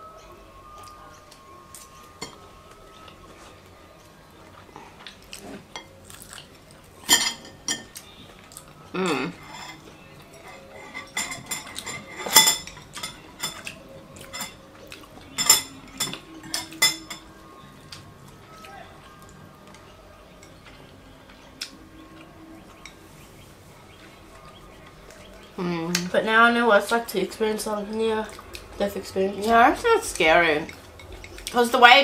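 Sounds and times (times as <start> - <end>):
chopsticks clinking on plates: 1.3 - 2.4, 7.0 - 17.4.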